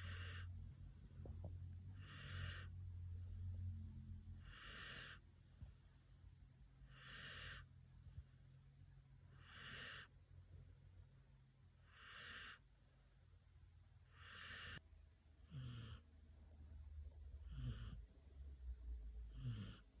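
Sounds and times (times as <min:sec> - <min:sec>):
dog snoring faintly: 0:00.0 - 0:05.3, 0:06.8 - 0:07.7, 0:09.3 - 0:10.2, 0:11.8 - 0:12.7, 0:14.0 - 0:14.8, 0:15.4 - 0:16.1, 0:17.3 - 0:18.1, 0:19.2 - 0:20.0.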